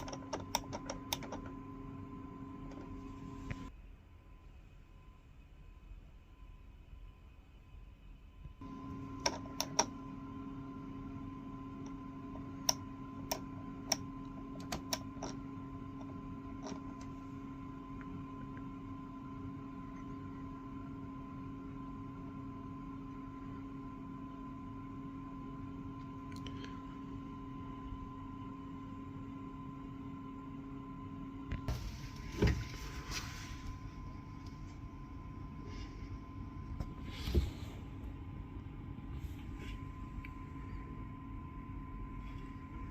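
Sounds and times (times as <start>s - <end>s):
machine hum: 0.0s - 42.9s
rustling or handling noise: 31.7s - 34.8s.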